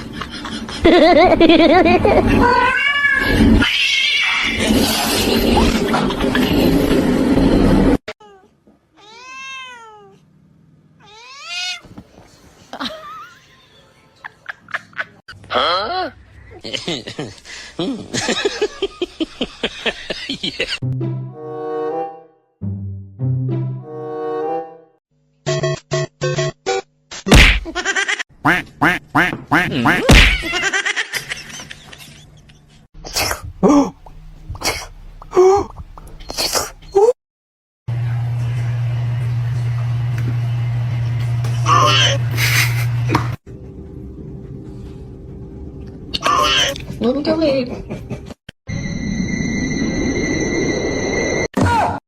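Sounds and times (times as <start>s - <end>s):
cat meowing: 2.4s - 4.5s, 8.2s - 10.2s, 11.0s - 11.9s.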